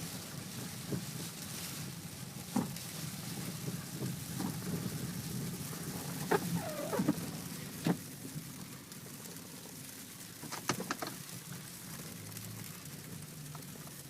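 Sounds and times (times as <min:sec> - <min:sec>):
car engine and tyres droning: 0:00.0 - 0:14.0
sharp knocks and creaks: 0:10.4 - 0:11.2.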